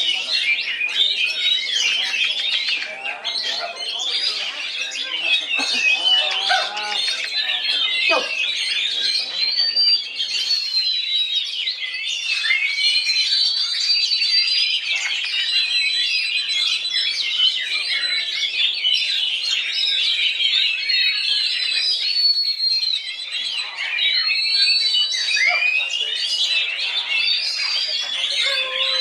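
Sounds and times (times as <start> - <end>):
bird singing chirps and whistles: 0.0 - 29.0.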